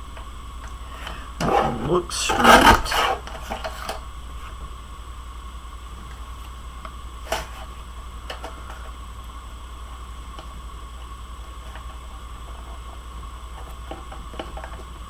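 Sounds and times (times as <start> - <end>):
microphone background hum: 0.0 - 9.4.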